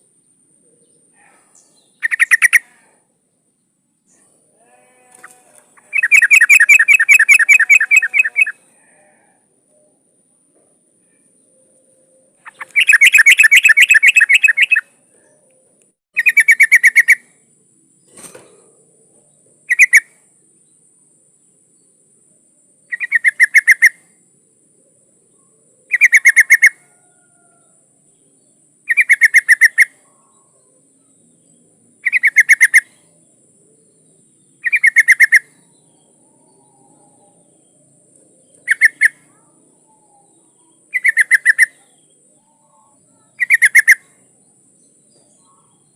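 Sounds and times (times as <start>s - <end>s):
bulbul chattering: 1.6s - 2.8s, 4.7s - 8.6s, 12.4s - 14.9s, 16.2s - 17.3s, 19.7s - 20.1s, 22.9s - 24.0s, 25.9s - 26.8s, 28.9s - 30.0s, 31.5s - 33.0s, 34.6s - 35.6s, 38.4s - 39.5s, 40.5s - 44.2s.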